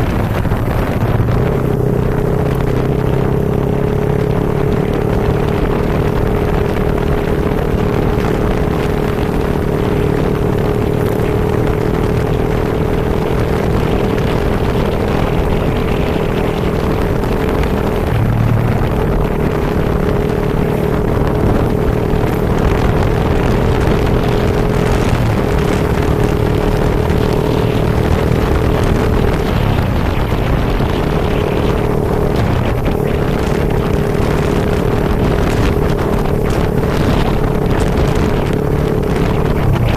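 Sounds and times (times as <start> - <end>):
vehicle engine running: 0.0 - 39.9
wind and rain noise: 0.0 - 39.9
steady hum: 16.5 - 23.6.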